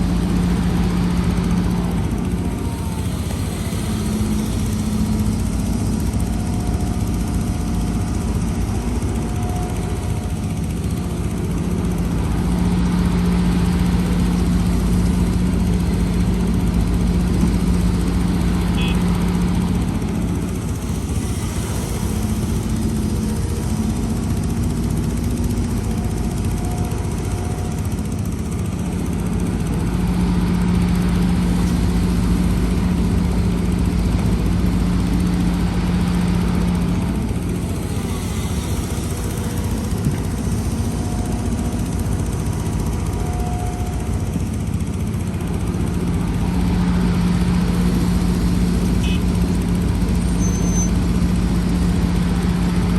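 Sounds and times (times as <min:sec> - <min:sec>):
diesel excavator engine running: 0:00.0 - 0:52.9.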